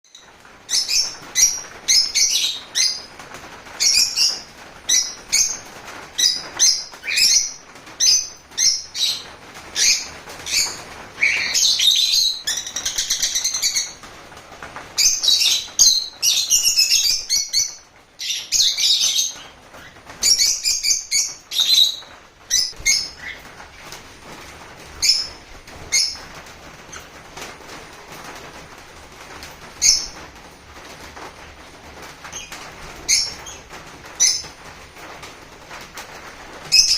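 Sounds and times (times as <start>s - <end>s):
parrots chirping and calling: 0.7s - 3.2s, 3.8s - 14.1s, 15.0s - 23.6s.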